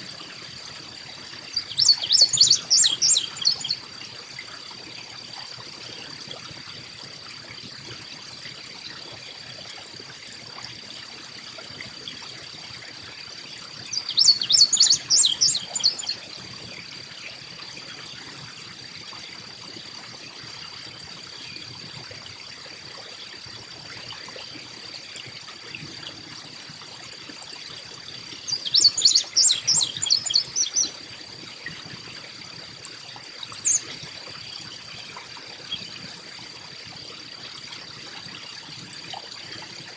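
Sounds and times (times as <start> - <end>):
chickadee chattering calls: 1.6 - 3.8, 13.9 - 16.2, 28.5 - 30.9, 33.6 - 33.9.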